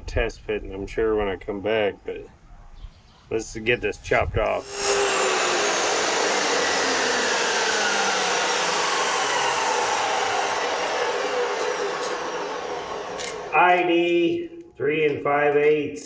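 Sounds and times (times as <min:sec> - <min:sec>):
cut-off wheel grinding steel pipe: 0:04.6 - 0:13.9.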